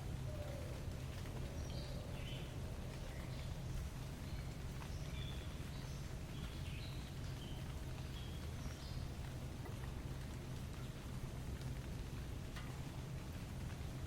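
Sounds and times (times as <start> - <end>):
small birds chirping: 0.0 - 11.1.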